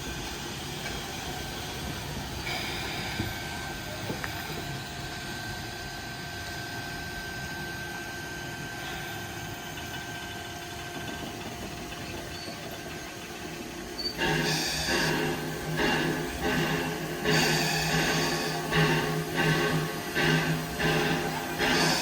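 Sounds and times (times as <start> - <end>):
hiss: 0.0 - 6.8, 13.8 - 22.0
train engine rumble: 0.0 - 22.0.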